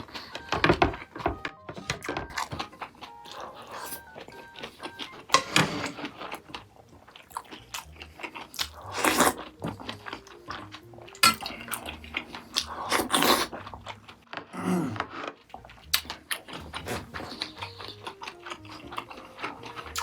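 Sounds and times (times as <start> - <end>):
person chewing crunchy food: 0.0 - 20.0
quiet background music: 0.0 - 20.0.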